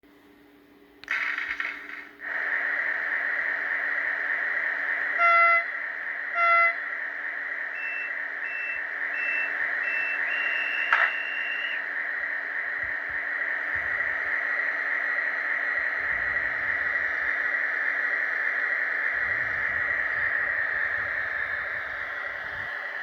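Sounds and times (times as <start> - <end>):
low hum: 1.0 - 23.0
steady hiss: 1.0 - 23.0.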